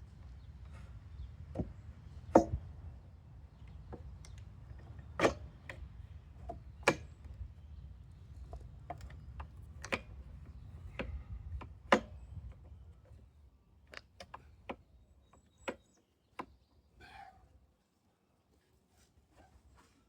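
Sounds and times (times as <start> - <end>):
knocks and clicks of boards: 2.3 - 2.6, 10.9 - 12.2.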